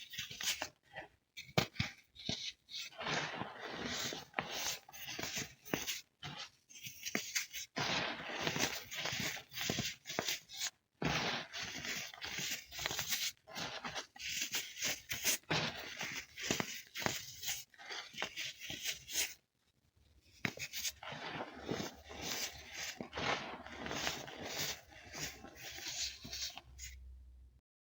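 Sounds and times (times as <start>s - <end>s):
baking soda crunching: 20.9s - 26.9s.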